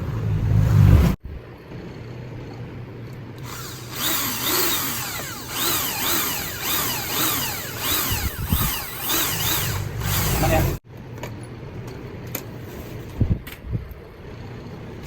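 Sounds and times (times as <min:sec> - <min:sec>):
electric drill whining in pulses: 0:03.4 - 0:10.8.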